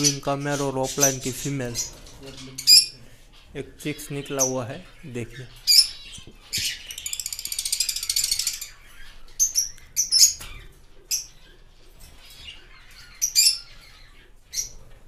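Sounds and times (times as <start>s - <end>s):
shrill bird chirps and squawks: 0.0s - 15.0s
bird rattling trill: 5.7s - 13.9s.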